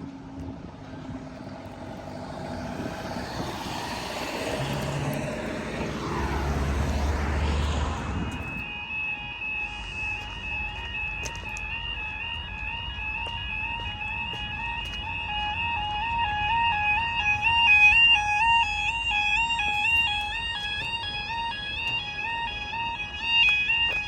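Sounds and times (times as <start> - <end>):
train engine rumbling past: 0.0 - 8.6.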